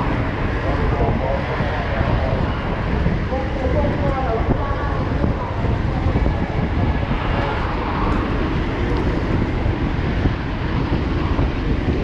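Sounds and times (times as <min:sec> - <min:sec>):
rumble of passing vehicles: 0:00.0 - 0:12.0.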